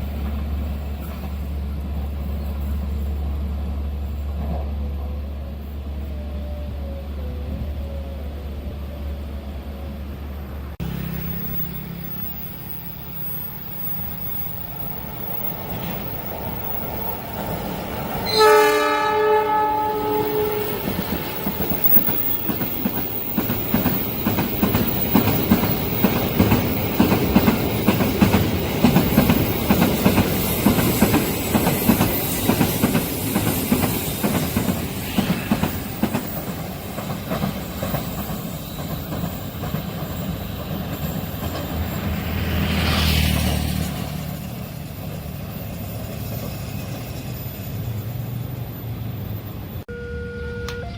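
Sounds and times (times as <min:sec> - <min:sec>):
train horn: 0:18.2 - 0:22.1, 0:35.0 - 0:35.9, 0:49.9 - 0:50.9
train wheels clattering: 0:19.8 - 0:47.8.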